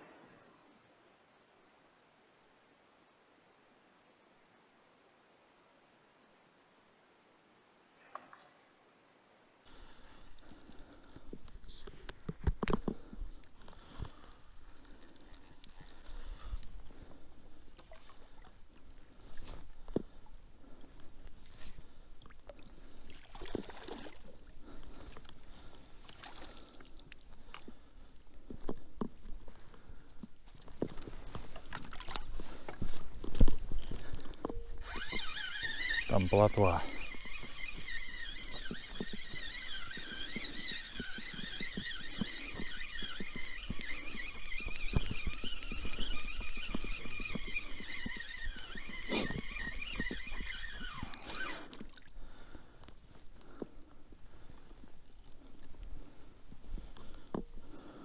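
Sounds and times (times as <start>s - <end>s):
faint background hiss: 0.0s - 35.5s
handling clicks and rustles: 10.0s - 17.2s, 27.5s - 51.9s.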